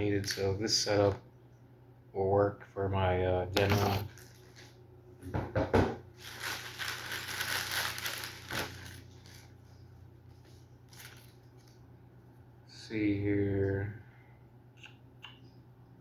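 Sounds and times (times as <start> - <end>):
packaging crinkling and rustling: 3.6 - 4.8, 6.2 - 11.8
knocks: 5.3 - 6.0.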